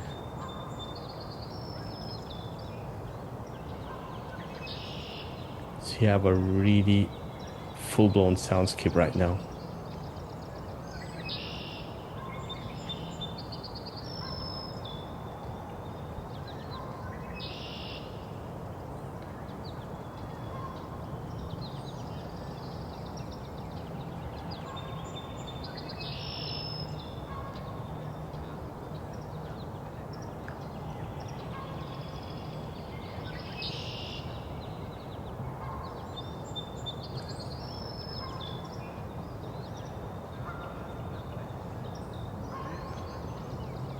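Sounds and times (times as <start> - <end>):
songbirds singing: 0.0 - 43.9
steady low background hum: 5.6 - 9.7.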